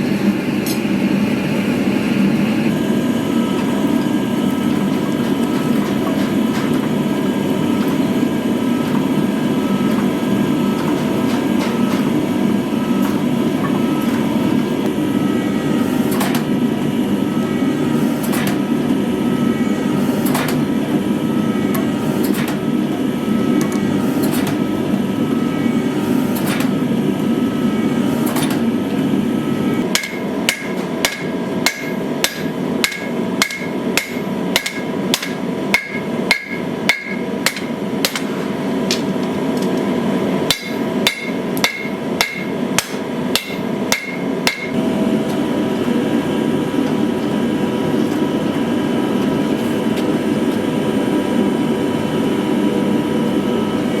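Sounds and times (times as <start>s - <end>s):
hammer ringing on anvil: 29.9s - 38.2s, 40.5s - 44.8s.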